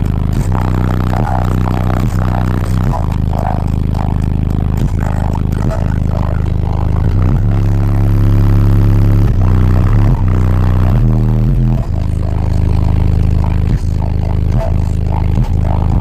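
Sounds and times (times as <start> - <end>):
loud bass-heavy rap from car stereo: 0.0 - 16.0.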